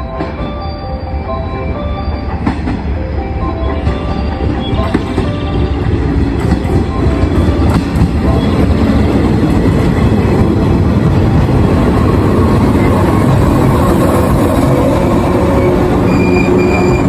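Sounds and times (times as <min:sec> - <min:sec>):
train wheels rumbling: 0:00.0 - 0:17.0
high brake squeal: 0:15.5 - 0:17.0.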